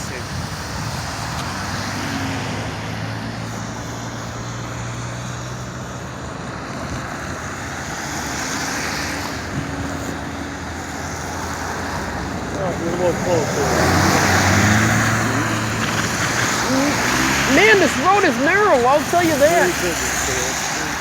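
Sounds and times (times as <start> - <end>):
vehicle engine rumble: 0.0 - 21.0.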